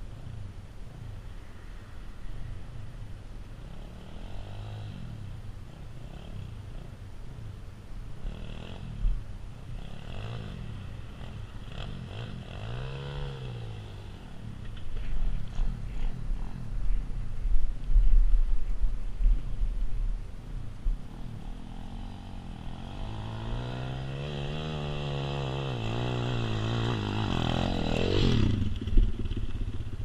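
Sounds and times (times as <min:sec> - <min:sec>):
motorbike engine revving: 0:09.8 - 0:14.4, 0:21.0 - 0:30.0.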